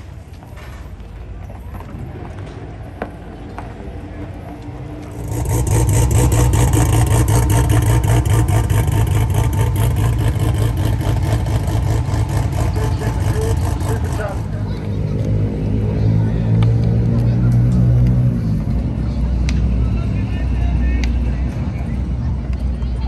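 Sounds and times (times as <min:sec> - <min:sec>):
quieter engine rumble: 0:00.1 - 0:23.0
race car engine running loudly: 0:05.0 - 0:19.9.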